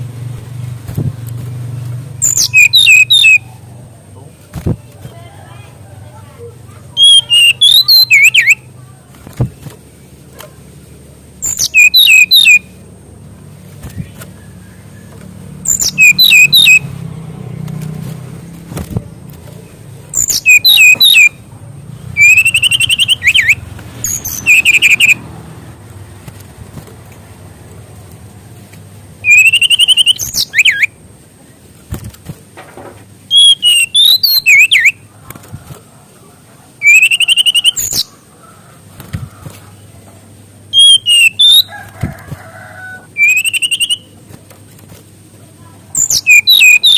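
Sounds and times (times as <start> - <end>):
songbird whistling phrases: 2.2 - 3.5, 6.9 - 8.7, 11.4 - 12.7, 13.9 - 16.9, 20.1 - 21.4, 22.2 - 25.2, 29.2 - 31.0, 33.3 - 35.0, 36.8 - 38.1, 40.7 - 41.7, 43.0 - 44.2, 46.0 - 46.9.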